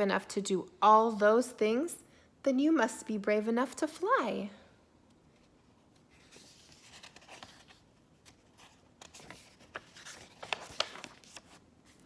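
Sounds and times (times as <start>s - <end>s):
paper rustling: 5.3s - 12.0s.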